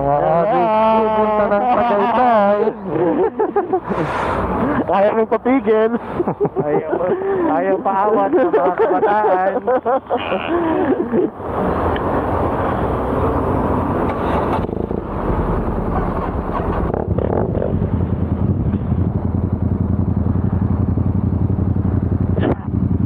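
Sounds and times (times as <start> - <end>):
broad rushing noise: 3.8 - 4.9
motorcycle engine idling: 17.7 - 23.0.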